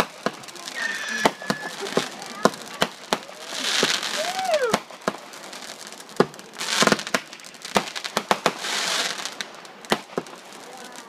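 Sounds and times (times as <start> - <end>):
firework whistle: 0.0 - 2.9, 3.6 - 4.8
firework bangs: 0.0 - 11.0
firework crackling hiss: 0.0 - 11.0.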